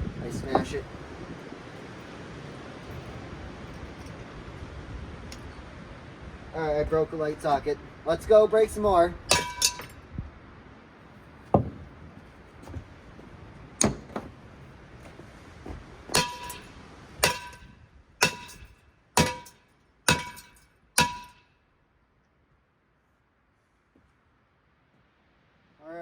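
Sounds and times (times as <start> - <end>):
metal fan being smashed: 9.3 - 10.0, 16.1 - 21.4.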